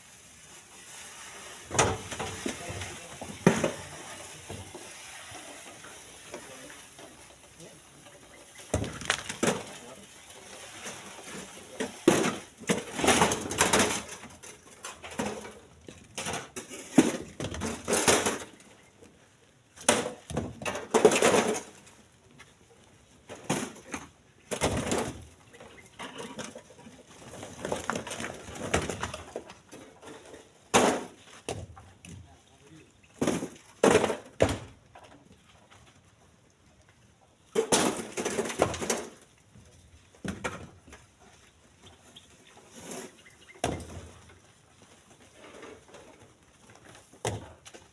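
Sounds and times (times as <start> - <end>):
stones knocking and scraping: 8.7 - 9.8.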